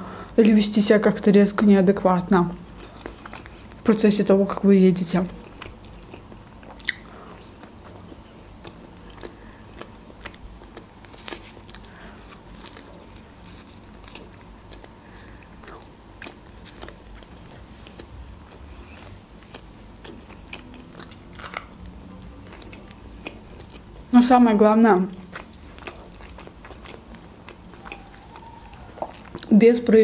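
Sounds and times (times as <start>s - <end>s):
chewing crusty bread: 2.6s - 29.6s.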